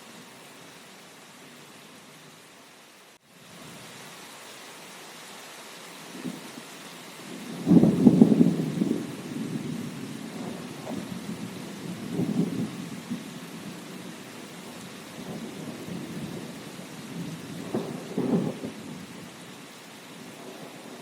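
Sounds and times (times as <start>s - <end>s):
steady rain: 0.0s - 21.0s
rolling thunder: 7.4s - 13.8s, 15.2s - 19.2s.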